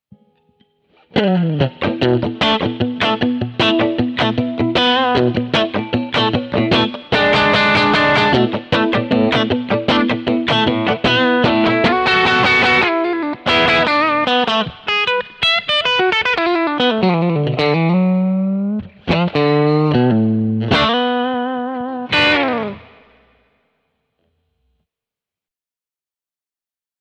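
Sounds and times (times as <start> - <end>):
overdriven electric guitar: 0.1 - 23.5.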